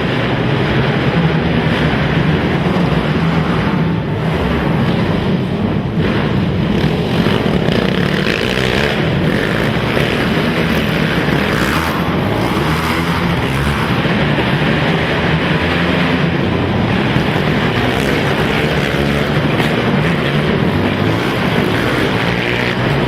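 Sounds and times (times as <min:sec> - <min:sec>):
racing quad engines revving: 0:00.0 - 0:23.0.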